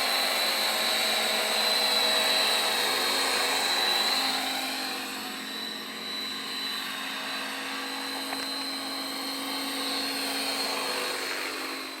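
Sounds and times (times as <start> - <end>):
rc helicopter whine: 0.0 - 12.0.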